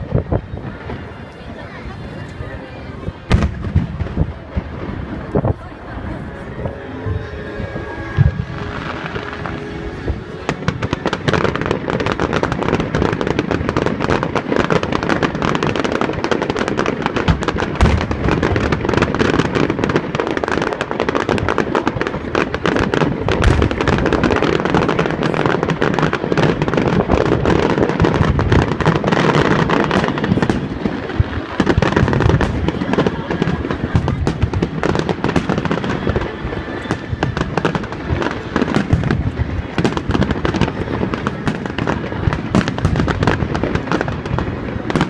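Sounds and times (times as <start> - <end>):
fireworks bursting: 0.0 - 45.0.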